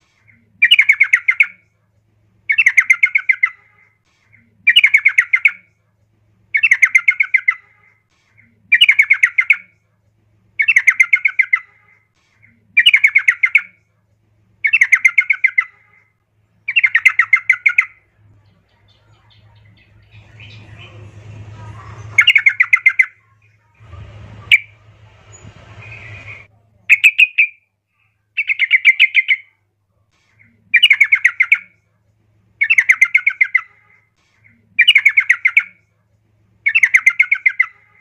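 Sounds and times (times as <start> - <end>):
bird chattering call: 18.8 - 23.1.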